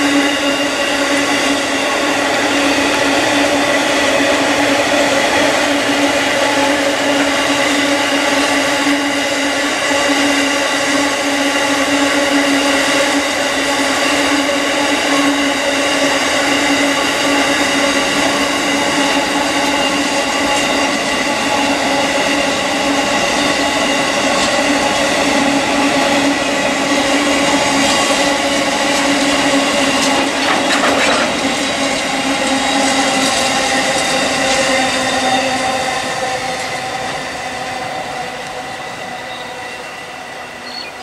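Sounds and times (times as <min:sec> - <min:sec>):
train wheels rumbling on rails: 0:00.0 - 0:41.0
brief clatter: 0:30.0 - 0:31.6.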